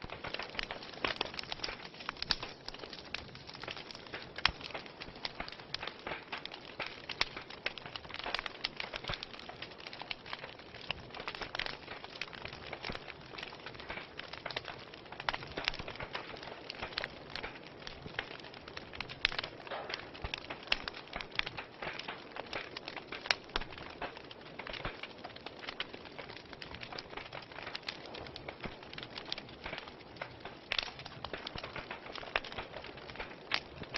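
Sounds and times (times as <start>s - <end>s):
loud sharp pops: 0.0s - 9.2s, 19.1s - 25.1s
wood fire crackling: 0.0s - 33.9s.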